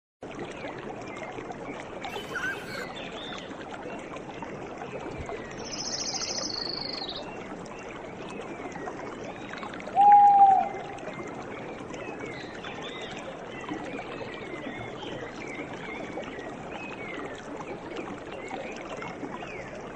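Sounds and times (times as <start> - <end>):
high bird trill: 2.1 - 2.9
loud falling bird call: 2.1 - 2.9
birds calling: 2.1 - 3.0
dense natural background chorus: 2.1 - 3.4.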